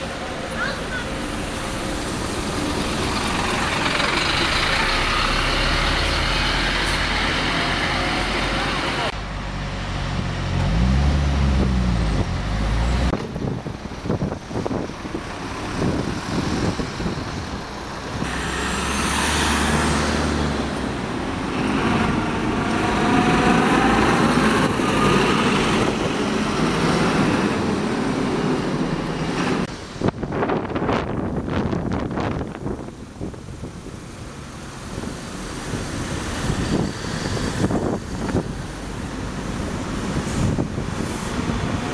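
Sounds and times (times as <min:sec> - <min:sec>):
bus engine revving: 0:00.0 - 0:29.7
street traffic: 0:00.0 - 0:41.9
rising engine whine: 0:18.2 - 0:29.7.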